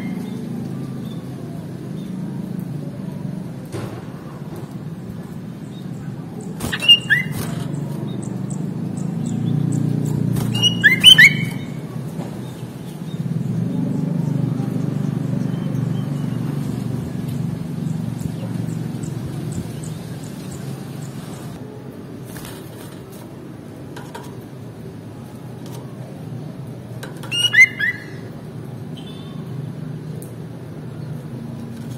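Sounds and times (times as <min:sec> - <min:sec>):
bulbul whistled calls: 0:06.4 - 0:09.8, 0:10.5 - 0:11.8, 0:27.3 - 0:28.2.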